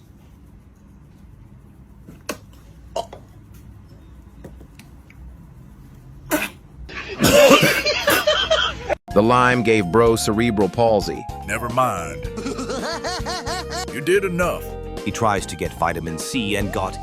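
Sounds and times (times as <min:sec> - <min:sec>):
person sputtering cough-like outburst: 0:07.2 - 0:07.8.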